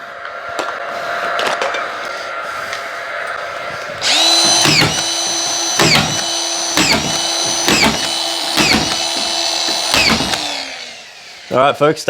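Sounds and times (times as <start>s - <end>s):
electric power tool whining: 3.4s - 12.0s.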